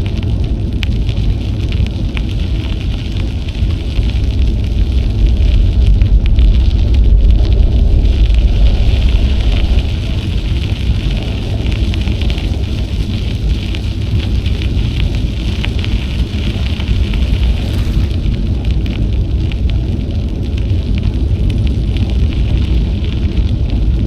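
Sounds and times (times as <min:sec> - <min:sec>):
bicycle tyres crackling on trail: 0:00.0 - 0:24.0
wind buffeting microphone: 0:00.0 - 0:24.0.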